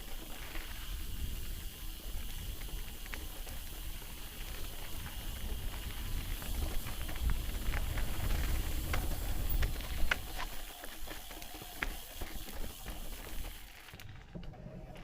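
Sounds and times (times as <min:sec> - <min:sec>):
wind rumbling on microphone: 0:00.0 - 0:10.6
footsteps on rocky trail: 0:00.0 - 0:14.9.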